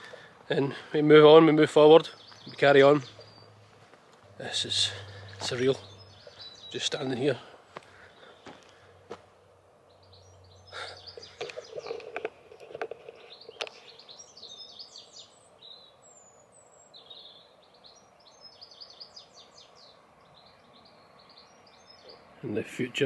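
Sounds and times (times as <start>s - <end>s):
songbirds chirping: 0.0s - 23.0s
close clicks and rustles: 11.2s - 14.0s.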